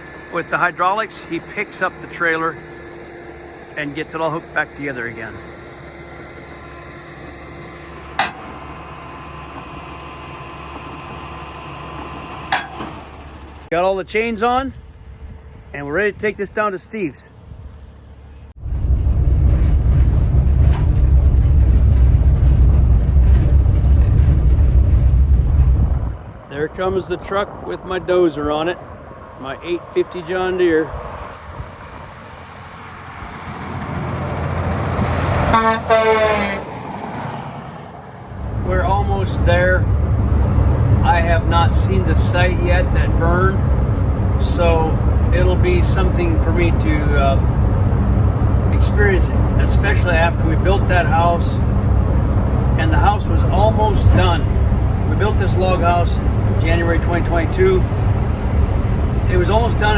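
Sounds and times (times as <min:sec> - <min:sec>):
diesel truck engine idling: 0:00.0 - 0:18.6, 0:37.9 - 0:59.9
vehicle horn honks: 0:35.5 - 0:36.7.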